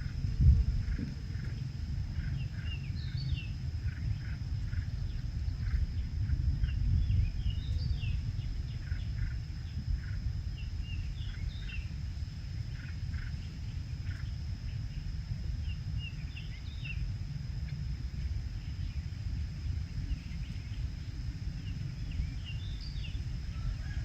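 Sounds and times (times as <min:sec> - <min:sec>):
wind rumble on microphone: 0:00.0 - 0:24.0
small birds chirping: 0:00.8 - 0:17.8.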